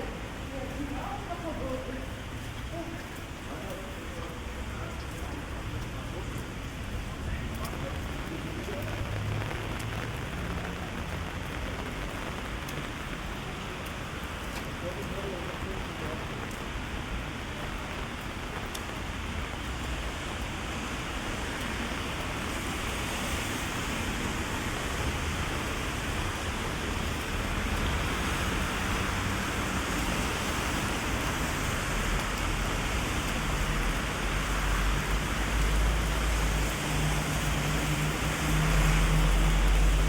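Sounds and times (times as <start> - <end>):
heavy rain on street: 0.0 - 40.0
traffic hum: 0.0 - 40.0.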